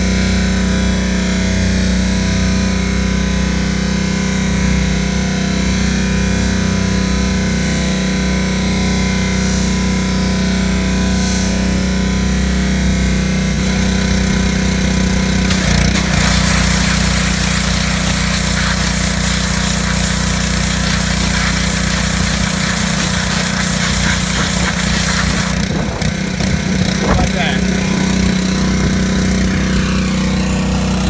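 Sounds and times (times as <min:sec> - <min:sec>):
pressure washer running: 0:05.6 - 0:31.0
spray jet hissing: 0:15.5 - 0:25.6.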